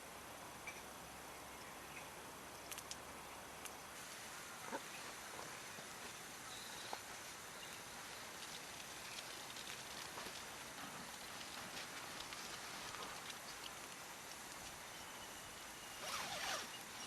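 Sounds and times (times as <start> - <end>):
steady hiss: 0.0 - 17.0
campfire crackling: 2.6 - 15.8
fire popping: 6.9 - 14.8.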